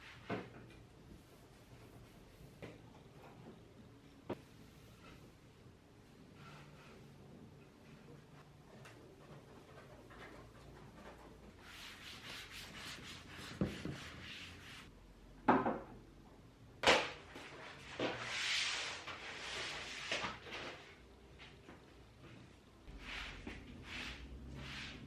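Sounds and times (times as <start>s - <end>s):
rubbing strokes on a surface: 11.6s - 14.9s, 22.9s - 25.0s.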